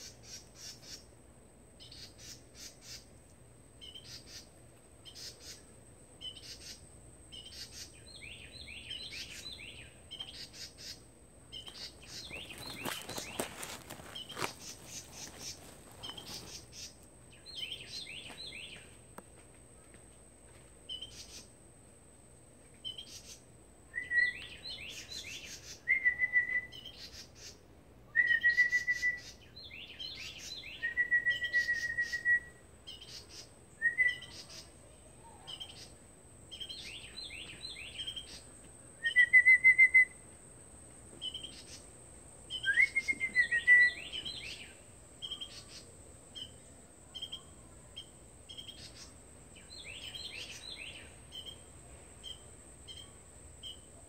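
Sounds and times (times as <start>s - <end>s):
birds whistling and chirping: 6.2s - 18.9s, 22.8s - 34.7s, 39.0s - 40.2s, 42.5s - 46.5s, 48.0s - 51.6s.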